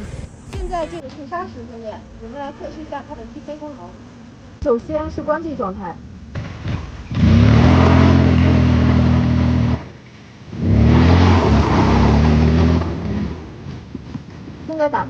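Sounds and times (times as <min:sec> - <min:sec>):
scooter engine at high revs: 0:06.6 - 0:09.9, 0:10.6 - 0:13.6.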